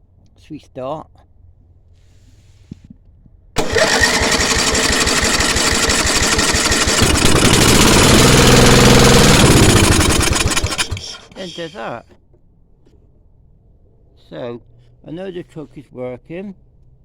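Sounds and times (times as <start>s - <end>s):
petrol engine running: 3.6s - 11.8s.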